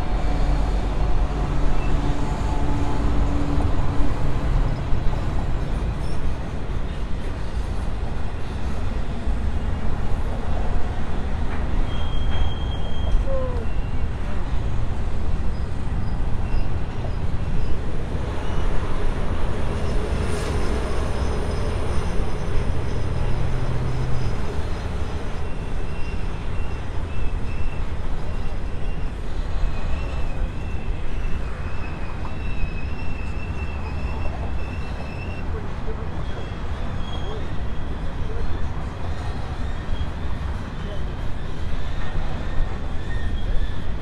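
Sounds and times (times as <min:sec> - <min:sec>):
train wheels rumbling on rail: 0:00.0 - 0:44.0
high wheel squeal: 0:11.7 - 0:14.3, 0:15.5 - 0:44.0.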